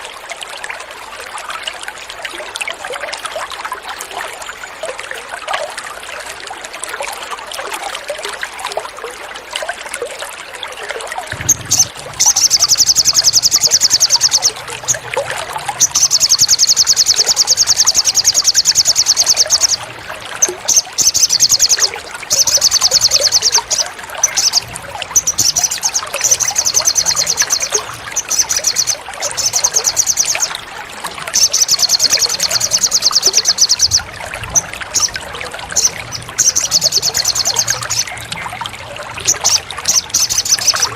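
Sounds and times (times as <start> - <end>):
water trickling: 0.0 - 40.9
songbird high trill: 11.3 - 15.0, 15.8 - 19.8, 25.2 - 30.6, 31.3 - 34.0.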